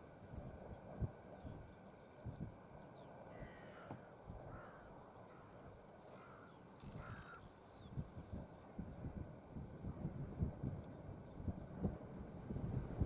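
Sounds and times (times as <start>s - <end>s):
wind rumble on microphone: 0.0s - 3.6s, 6.8s - 13.0s
faint bird calls: 1.4s - 8.6s.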